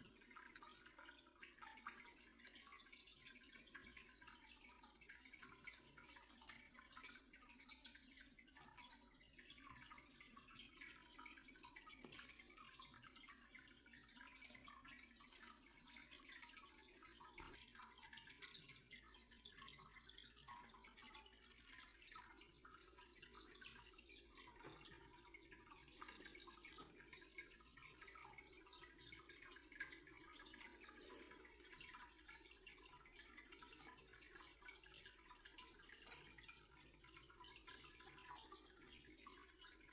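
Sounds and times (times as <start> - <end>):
soft ticks: 35.9 - 36.9.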